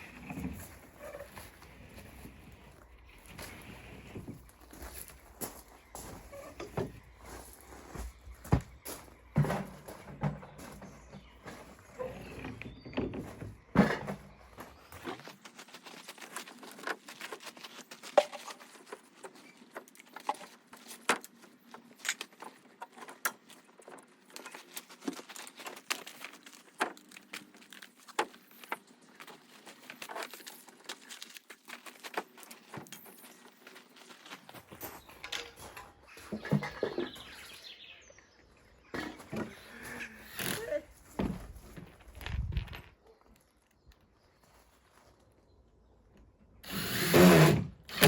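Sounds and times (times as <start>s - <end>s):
wood and tools clicking and knocking: 5.4s - 37.6s.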